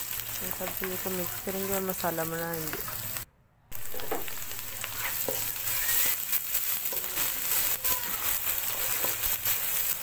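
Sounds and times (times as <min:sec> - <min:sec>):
masala sizzling in oil: 0:00.0 - 0:10.0
spatula clicking and scraping pan: 0:03.8 - 0:10.0.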